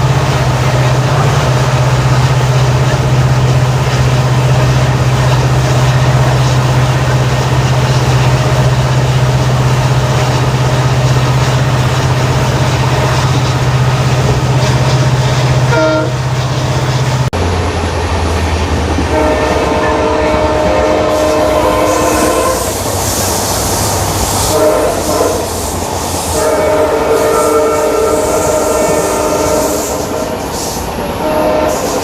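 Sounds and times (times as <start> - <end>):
diesel locomotive engine humming: 0.0 - 32.0
locomotive horn toot: 15.7 - 16.4, 19.1 - 23.0, 24.4 - 25.7, 26.3 - 30.5, 31.2 - 32.0.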